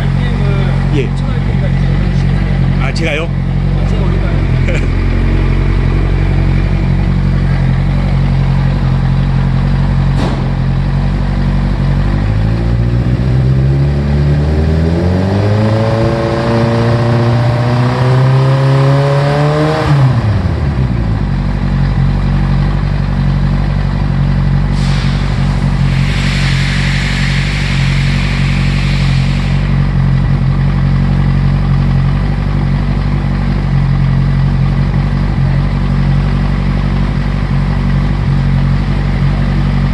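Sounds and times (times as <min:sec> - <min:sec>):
motorcycle engine idling and revving: 0:00.0 - 0:39.9
brief hiss: 0:24.8 - 0:29.7.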